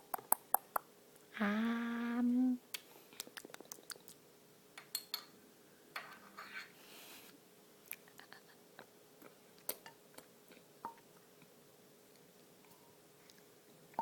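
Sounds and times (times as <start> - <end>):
person humming: 1.3 - 2.6.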